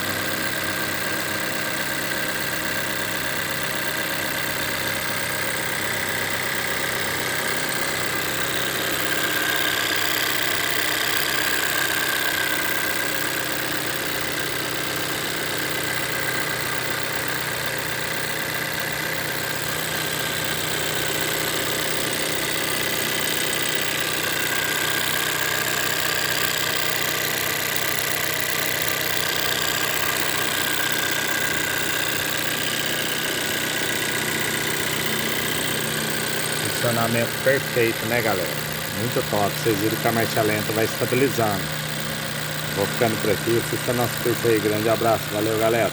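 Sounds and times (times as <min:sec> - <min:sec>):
car engine idling: 0:18.0 - 0:45.9.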